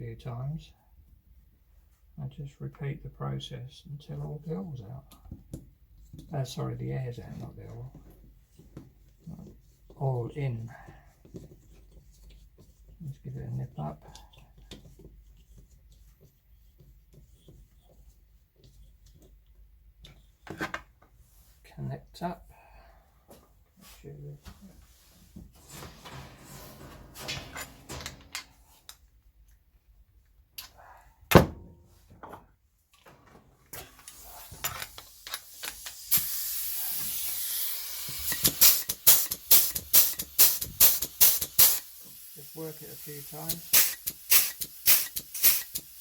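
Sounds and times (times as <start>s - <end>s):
pneumatic tool rapid strokes: 34.0s - 42.4s, 43.1s - 46.0s
compressed air hissing: 34.0s - 46.0s.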